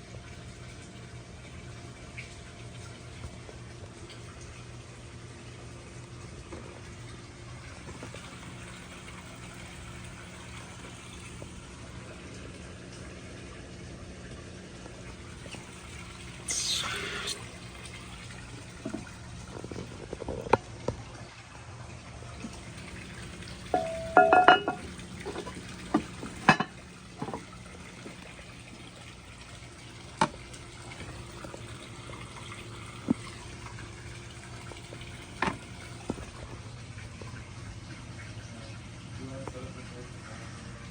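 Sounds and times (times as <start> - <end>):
toilet running water hiss: 14.2 - 40.9.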